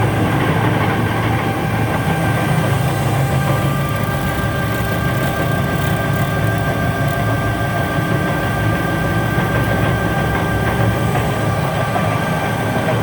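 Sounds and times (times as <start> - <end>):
metal-cutting bandsaw running: 2.2 - 12.0.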